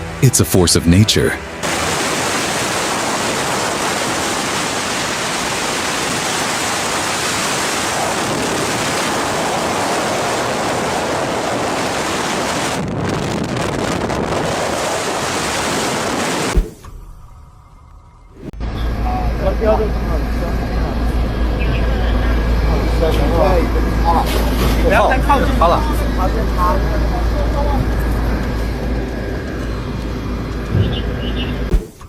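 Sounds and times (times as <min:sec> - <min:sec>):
wind blowing over microphone: 0:01.8 - 0:16.8.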